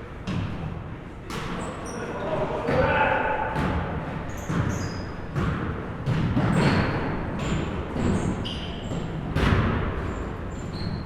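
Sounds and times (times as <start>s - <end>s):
basketballs bouncing on a court: 0.2s - 0.7s, 2.6s - 11.0s
sneakers squeaking on hardwood: 4.2s - 11.0s.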